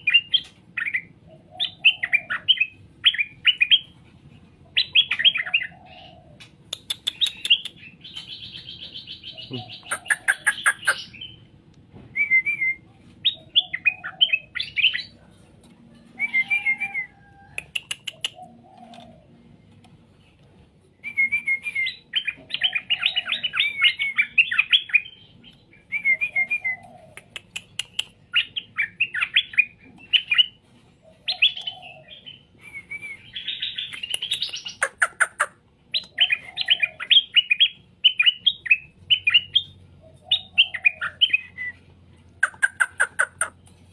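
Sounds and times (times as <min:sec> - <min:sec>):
bird singing warbled phrases: 0:00.0 - 0:11.6, 0:12.2 - 0:15.3, 0:16.0 - 0:43.8
sharp clicks: 0:06.7 - 0:08.3.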